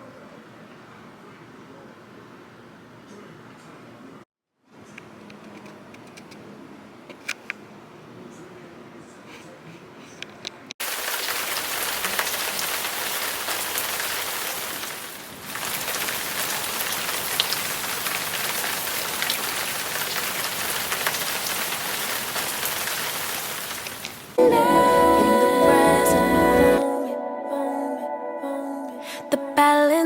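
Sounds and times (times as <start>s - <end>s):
steady rain falling: 10.8s - 24.4s.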